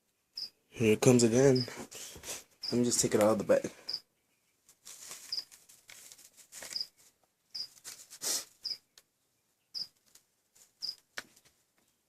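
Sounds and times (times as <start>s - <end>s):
plastic bag rustling: 4.7s - 8.4s.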